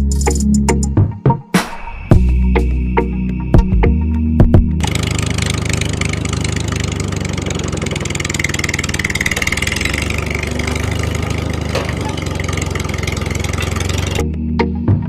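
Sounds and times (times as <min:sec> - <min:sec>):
music with drum hits: 0:00.1 - 0:02.7
small engine chugging: 0:04.8 - 0:14.2.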